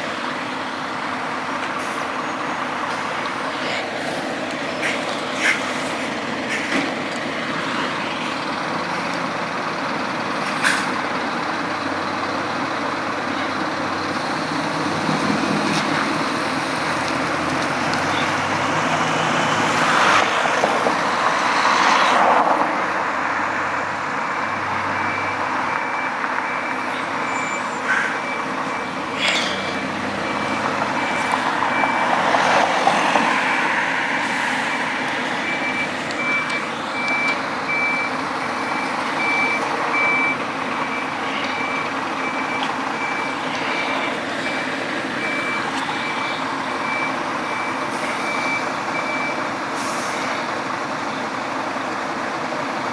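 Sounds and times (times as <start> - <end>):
heavy truck engines: 0.0 - 52.9
air brake hiss: 49.8 - 50.4.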